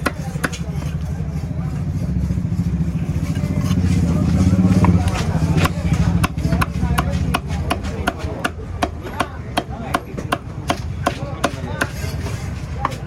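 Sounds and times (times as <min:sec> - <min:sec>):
knife chopping on a block: 0:00.0 - 0:00.9, 0:04.7 - 0:13.0.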